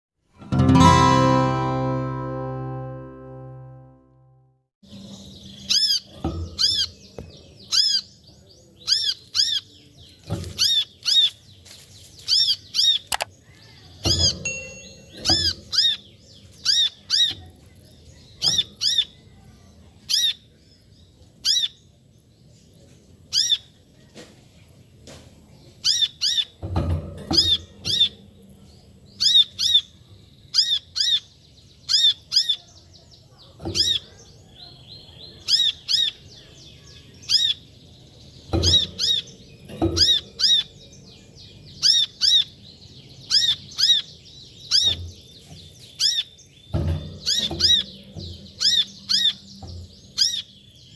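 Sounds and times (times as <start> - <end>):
bird high call notes: 0.6 - 4.1.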